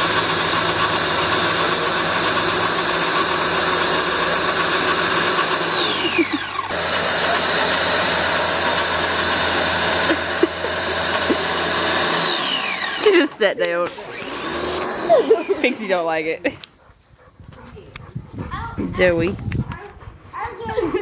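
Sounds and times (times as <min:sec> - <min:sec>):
pressure washer motor humming: 0:00.0 - 0:16.2.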